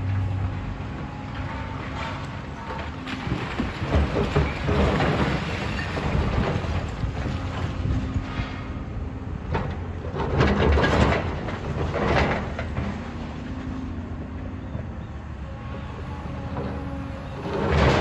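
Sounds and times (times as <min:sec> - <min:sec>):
demolition machinery rumbling: 0:00.0 - 0:18.0
crashes of breaking debris: 0:03.1 - 0:07.7.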